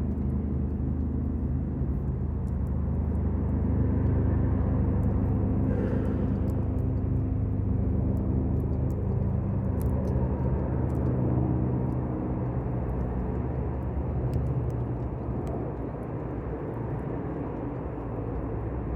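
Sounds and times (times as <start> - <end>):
campfire crackling: 0.0 - 18.9
low engine rumble: 0.0 - 18.9.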